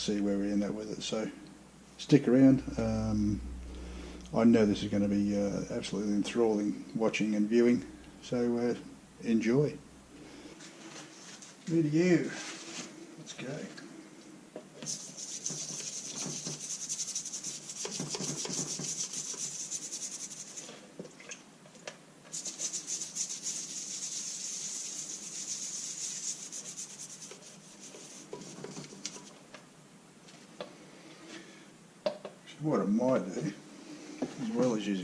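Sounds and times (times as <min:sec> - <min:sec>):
toothbrush scrubbing engine: 0:14.9 - 0:20.7, 0:22.3 - 0:29.3.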